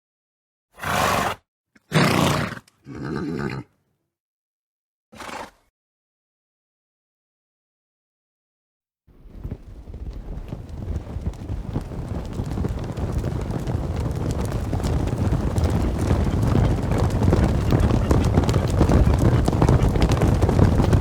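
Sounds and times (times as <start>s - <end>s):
wind on the microphone: 9.1s - 21.0s
horse hooves drumming: 9.2s - 21.0s.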